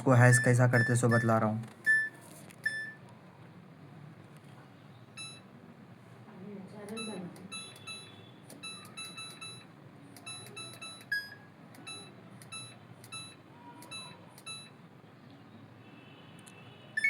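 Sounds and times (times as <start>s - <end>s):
short electronic beeps: 0.3s - 3.0s, 5.2s - 5.5s, 7.0s - 14.7s.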